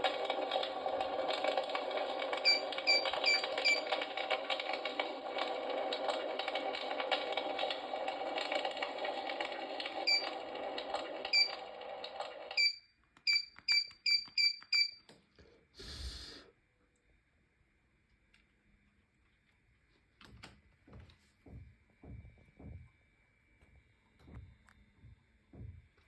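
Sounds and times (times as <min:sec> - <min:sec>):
clicks with high chirps: 0:02.5 - 0:03.8, 0:12.6 - 0:15.1.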